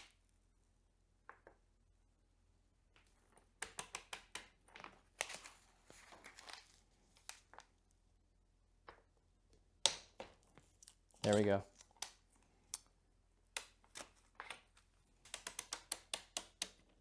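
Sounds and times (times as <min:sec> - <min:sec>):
tools clicking and clattering: 0:10.7 - 0:12.9.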